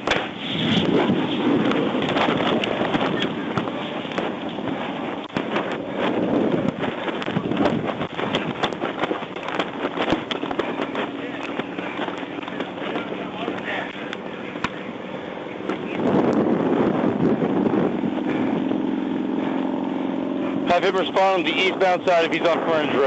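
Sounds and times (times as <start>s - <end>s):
fire crackling and popping: 0.0s - 14.9s
steady rushing noise: 0.0s - 23.0s.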